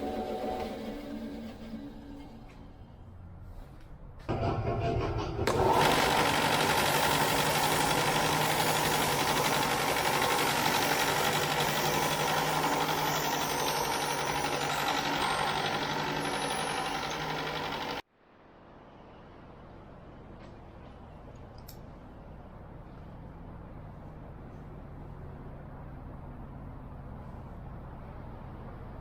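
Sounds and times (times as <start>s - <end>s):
electric power tool running: 5.4s - 18.0s.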